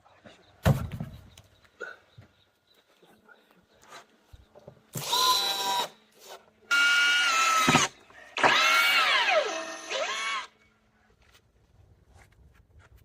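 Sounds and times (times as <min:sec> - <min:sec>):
power drill motor whining: 0:05.0 - 0:06.0, 0:06.7 - 0:10.5.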